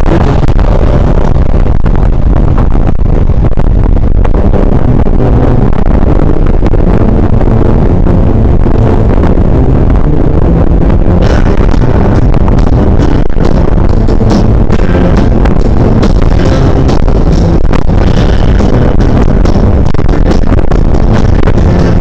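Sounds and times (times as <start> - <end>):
road rumble: 0.0 - 22.0
wind noise on microphone: 0.0 - 22.0.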